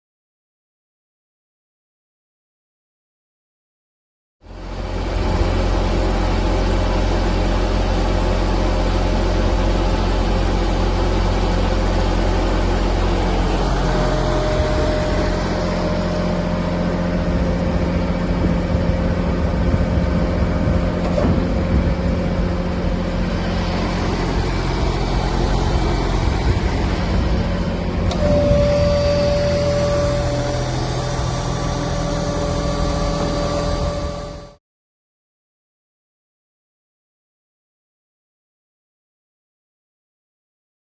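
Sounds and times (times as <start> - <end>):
steady higher whine: 4.4 - 34.6
tractor engine running: 4.5 - 34.6.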